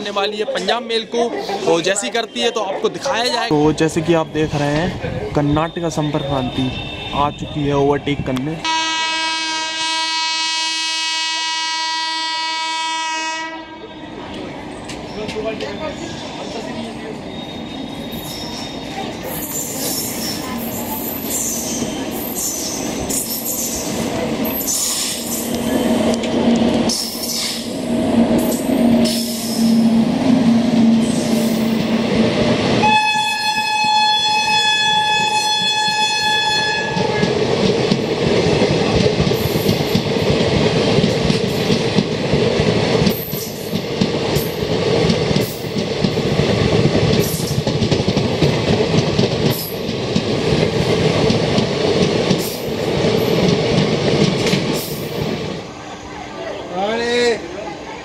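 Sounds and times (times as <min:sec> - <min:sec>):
train coaches rumbling: 0:00.0 - 0:10.1, 0:12.9 - 0:58.0
train horn blast: 0:08.6 - 0:14.1, 0:32.8 - 0:37.3.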